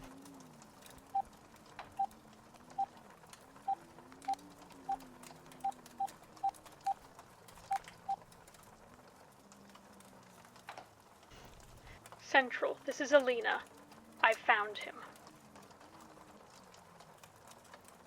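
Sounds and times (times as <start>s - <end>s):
howl of blizzard wind: 0.0s - 18.0s.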